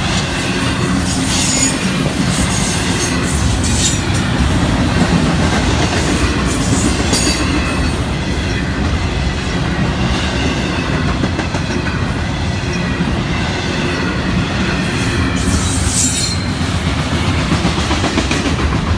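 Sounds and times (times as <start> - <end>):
freight train wheels rumbling: 0.0 - 18.9
wheel screeching on rail: 0.0 - 18.9.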